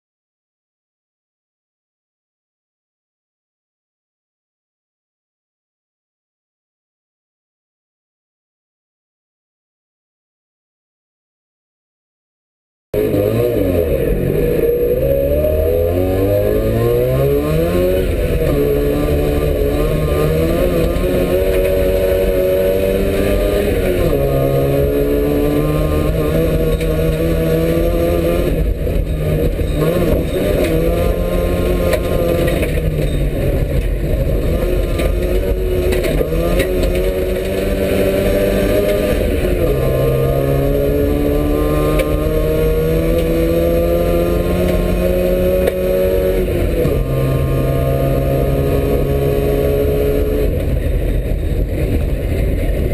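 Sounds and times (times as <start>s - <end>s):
car engine accelerating: 13.0s - 52.9s.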